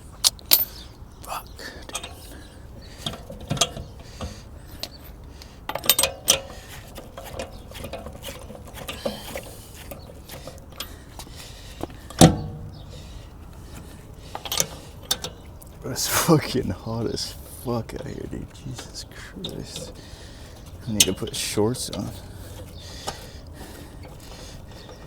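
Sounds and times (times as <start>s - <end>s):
metal tools clinking: 0.4s - 0.8s, 1.9s - 2.3s, 20.8s - 22.2s
loud ringing metal clank: 12.2s - 13.2s.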